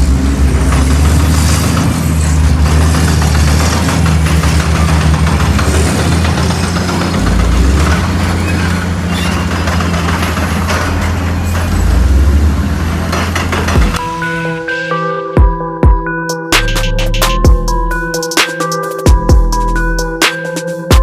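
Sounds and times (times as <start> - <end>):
heavy truck engine rumbling: 0.0 - 18.2
road and mechanical noise: 0.0 - 21.0.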